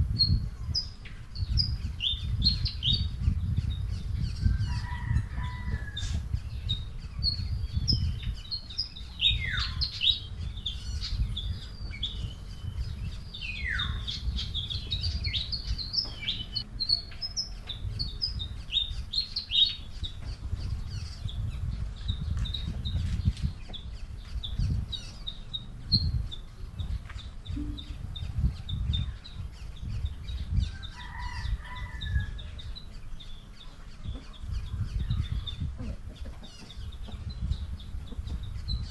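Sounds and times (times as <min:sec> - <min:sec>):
downward-sweeping bird calls: 0:00.0 - 0:38.9
small birds chirping: 0:00.0 - 0:38.9
low rumble: 0:19.8 - 0:31.6.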